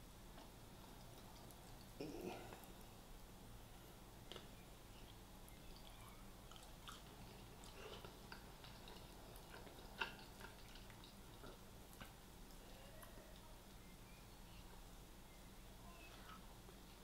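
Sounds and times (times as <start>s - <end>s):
chewing and mouth sounds: 0.3s - 2.9s, 4.2s - 13.9s.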